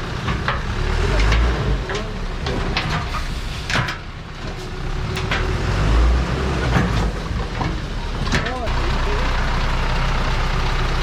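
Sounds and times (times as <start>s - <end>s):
diesel truck engine rumbling: 0.0s - 11.0s
sharp clicks and knocks: 0.2s - 5.6s.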